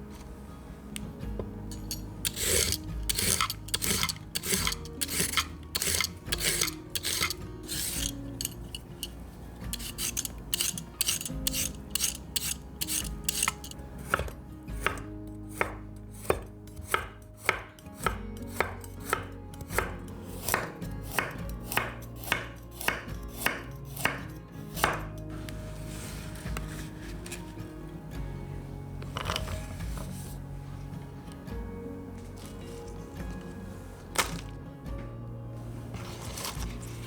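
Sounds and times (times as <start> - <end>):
knife chopping on cutting board: 9.8 - 25.1.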